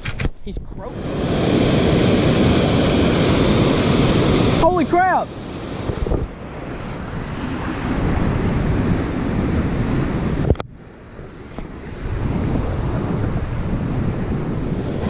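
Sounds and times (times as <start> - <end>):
wind buffeting microphone: 0.0 - 15.0
waterfall rushing: 0.8 - 10.4.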